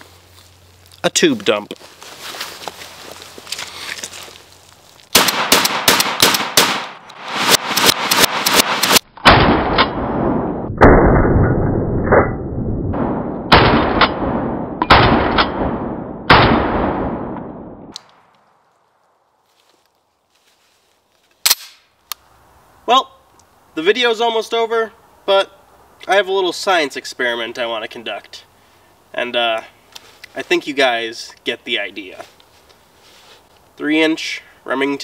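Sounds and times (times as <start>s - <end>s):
shotgun shots: 5.1s - 11.0s, 13.0s - 17.6s.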